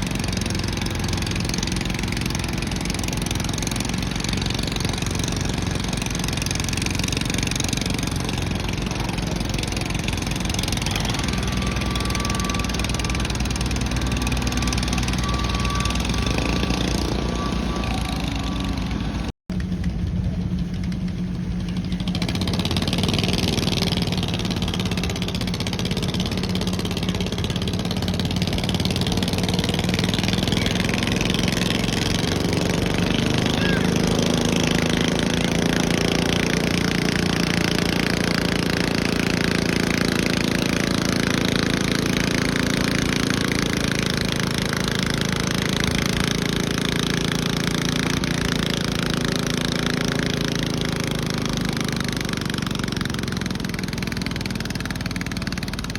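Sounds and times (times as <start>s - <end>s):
tractor engine at high revs: 0.0s - 55.9s.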